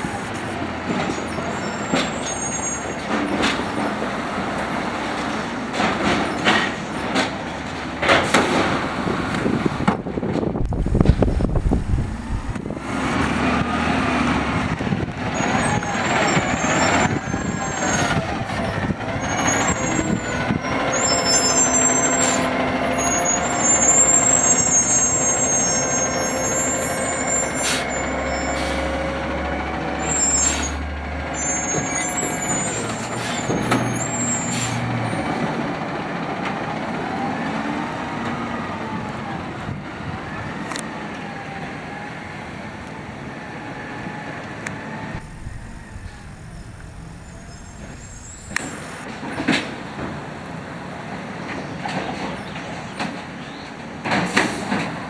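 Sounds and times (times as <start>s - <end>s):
high squeals: 0.0s - 3.4s, 15.2s - 35.3s, 45.0s - 49.1s
garbage truck engine idling: 0.0s - 39.0s
hydraulic arm whine: 10.6s - 35.6s, 44.0s - 49.1s.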